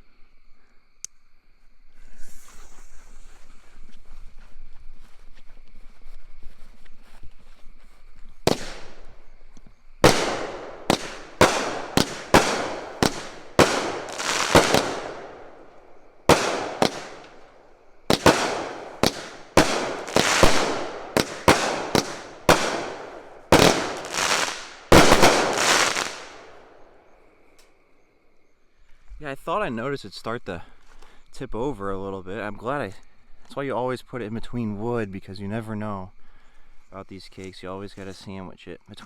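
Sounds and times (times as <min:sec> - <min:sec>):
fireworks bangs with echo: 0:08.4 - 0:09.3, 0:10.0 - 0:26.7.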